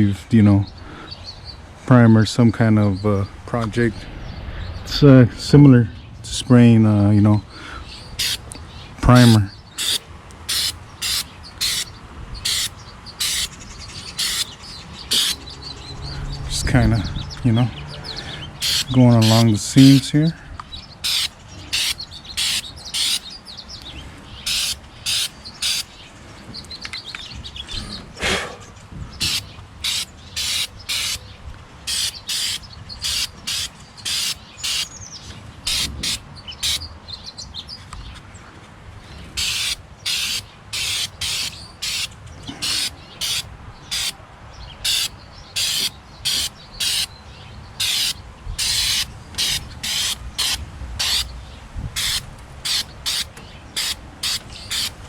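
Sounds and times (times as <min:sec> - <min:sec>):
birds chirping: 0:00.0 - 0:55.0
aerosol can spraying: 0:08.2 - 0:08.4, 0:09.2 - 0:13.5, 0:14.2 - 0:14.5, 0:15.1 - 0:15.4, 0:18.6 - 0:19.4, 0:21.0 - 0:23.2, 0:24.5 - 0:25.9, 0:29.2 - 0:31.2, 0:31.9 - 0:34.9, 0:35.7 - 0:36.8, 0:39.4 - 0:44.2, 0:44.9 - 0:47.1, 0:47.8 - 0:51.3, 0:52.0 - 0:55.0.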